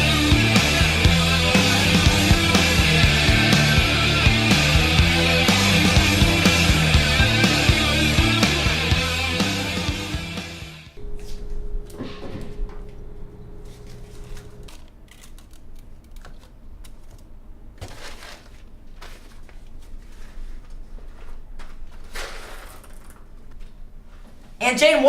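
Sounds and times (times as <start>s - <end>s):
steady hum: 0.0s - 17.8s.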